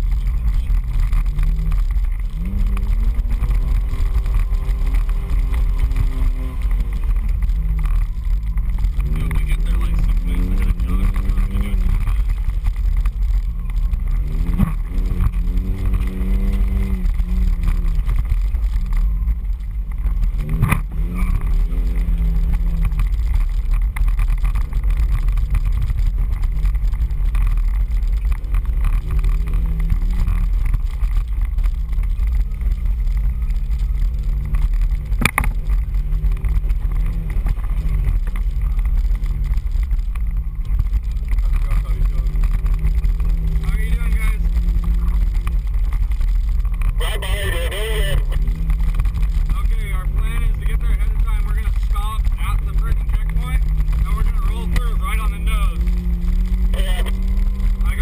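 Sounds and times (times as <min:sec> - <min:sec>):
off-road vehicle engine revving: 0:00.0 - 0:58.0.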